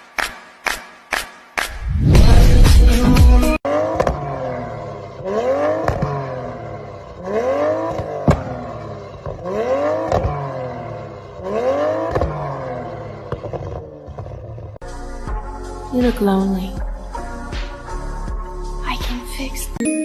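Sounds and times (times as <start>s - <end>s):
car engine revving: 1.7s - 14.8s.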